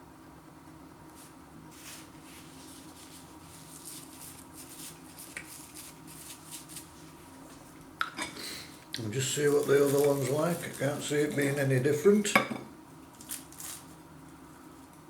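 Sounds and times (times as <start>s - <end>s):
low steady hum: 0.0s - 15.0s
pastry crackling while eaten: 1.2s - 8.0s, 8.8s - 11.6s, 13.0s - 15.0s.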